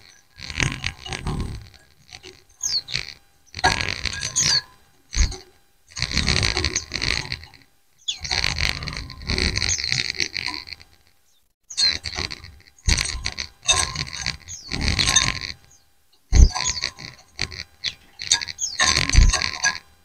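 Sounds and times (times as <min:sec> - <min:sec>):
birds chirping and twittering: 0:00.0 - 0:20.0.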